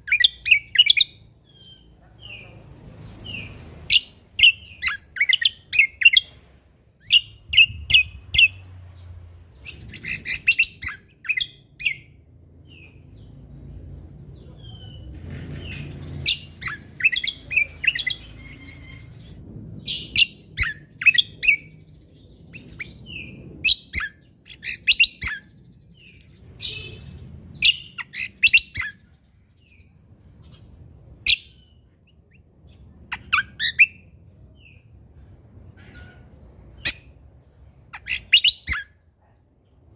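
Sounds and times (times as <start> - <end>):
songbird chirping and whistling: 0.0 - 1.9, 3.3 - 6.4, 7.0 - 8.7, 9.6 - 12.2, 15.7 - 21.8, 22.4 - 29.0, 31.2 - 34.1, 37.9 - 39.0
faint low rumble: 6.2 - 38.0.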